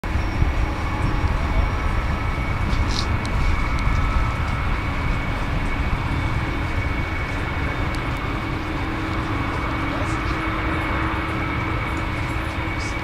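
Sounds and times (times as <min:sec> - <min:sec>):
jet engines rumbling and whining: 0:00.0 - 0:13.0.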